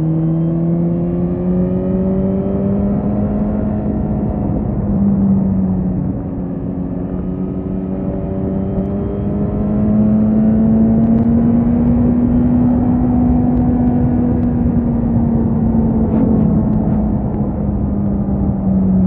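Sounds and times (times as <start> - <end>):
steady rush of noise: 13.4 - 19.0.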